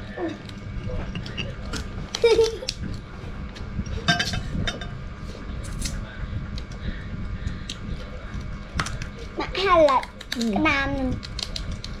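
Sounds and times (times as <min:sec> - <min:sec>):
dishes and utensils clinking: 0:00.8 - 0:01.8, 0:04.0 - 0:05.0.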